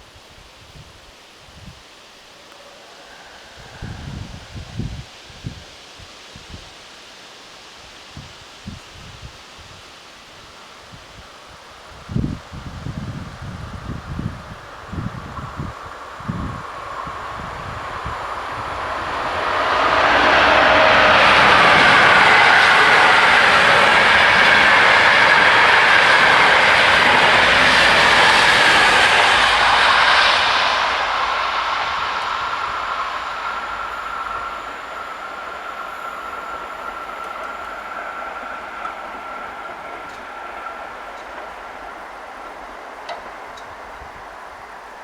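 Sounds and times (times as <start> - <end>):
train passing: 0.0 - 45.0
thin high tone: 16.2 - 42.3.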